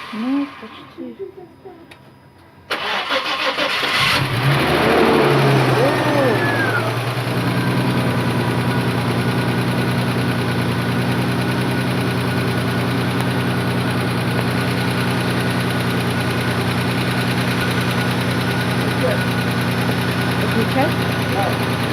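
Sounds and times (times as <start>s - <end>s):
car engine idling: 2.8s - 21.9s.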